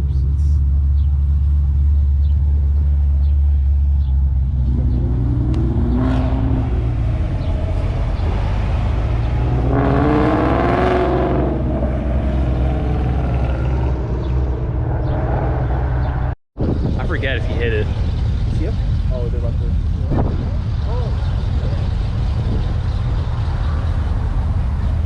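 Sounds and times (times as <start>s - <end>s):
low engine rumble: 0.0s - 25.0s
cars accelerating: 0.3s - 16.4s.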